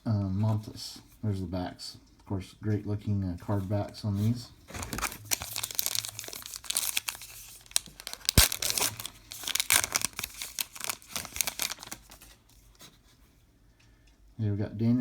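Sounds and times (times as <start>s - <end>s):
wrapper tearing and crumpling: 4.8s - 12.4s.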